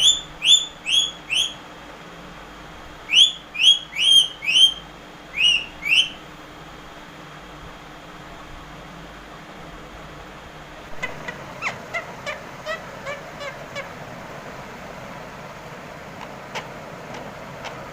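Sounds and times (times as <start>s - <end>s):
parakeet whistling rising notes: 0.0s - 1.6s, 3.1s - 6.2s.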